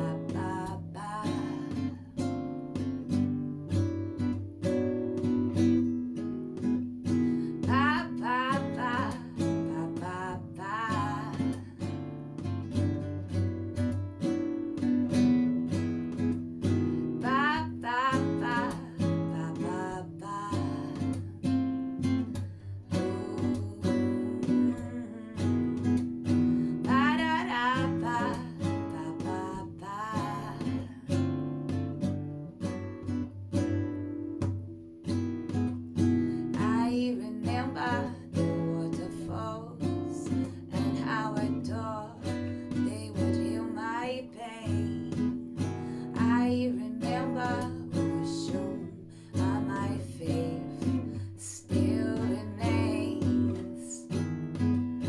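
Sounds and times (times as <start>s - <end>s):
woman singing wordless melody: 0.0s - 2.6s, 7.4s - 12.3s, 17.1s - 21.5s, 22.8s - 31.6s, 36.2s - 54.3s
acoustic guitar playing: 0.0s - 55.0s.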